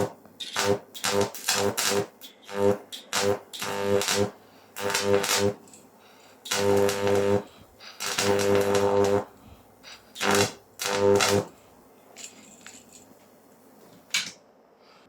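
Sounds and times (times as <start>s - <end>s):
electric arc buzzing and hissing: 0.0s - 11.8s.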